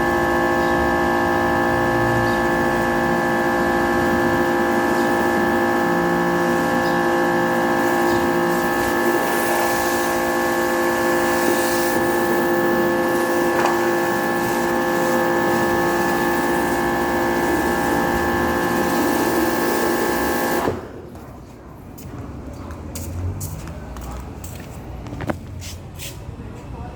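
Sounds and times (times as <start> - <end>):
pressure washer motor whine: 0.0 - 21.1
spraying water hiss: 7.6 - 20.6.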